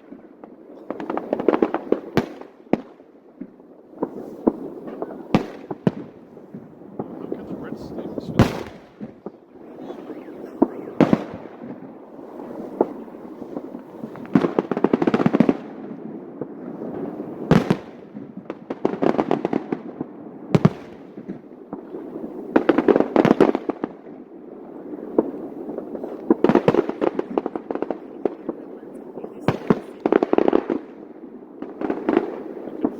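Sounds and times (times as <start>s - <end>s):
rapid firework crackling: 0.4s - 32.9s
continuous rumble: 6.3s - 14.4s.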